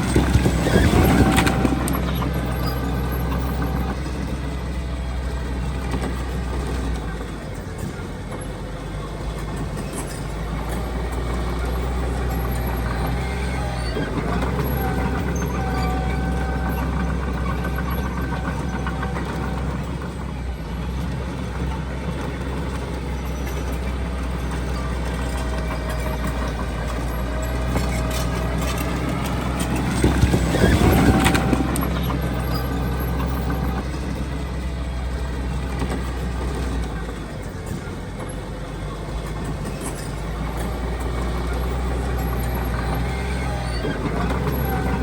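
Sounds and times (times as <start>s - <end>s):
metal clanking: 0.0s - 5.0s, 9.3s - 45.0s
heavy machinery diesel engine: 0.0s - 45.0s.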